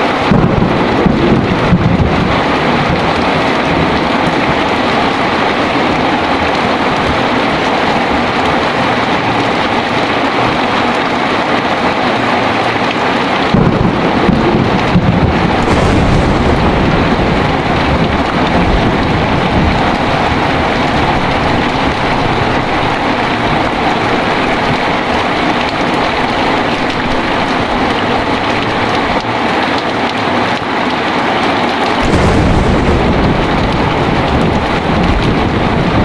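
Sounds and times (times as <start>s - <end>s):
thunder cracking and rumbling: 0.0s - 30.6s, 31.7s - 36.0s
heavy rain falling: 0.0s - 36.0s.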